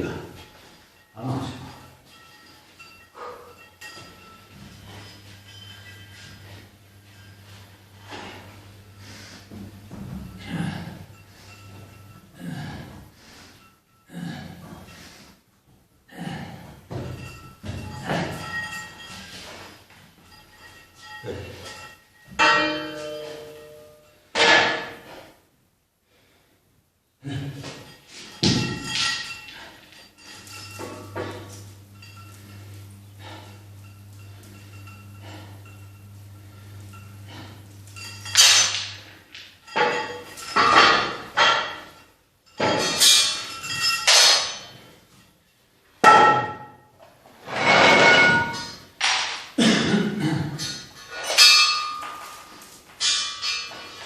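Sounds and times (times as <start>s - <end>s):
metal gym weights clanking: 0.0s - 12.9s, 16.9s - 25.2s, 27.3s - 45.0s, 47.4s - 49.4s, 50.6s - 54.0s
steady low hum: 0.0s - 26.4s, 27.2s - 45.3s.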